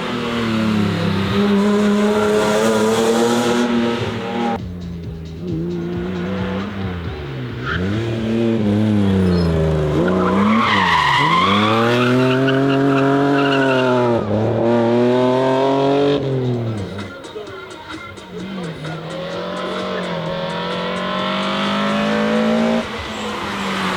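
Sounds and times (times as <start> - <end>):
car engine revving: 0.0 - 23.9
tyre squeal: 9.2 - 14.2.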